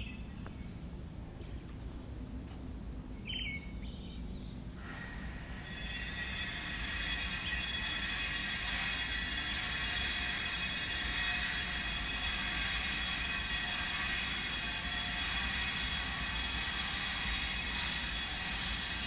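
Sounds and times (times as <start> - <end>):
power grinder grinding stone: 5.6 - 19.0.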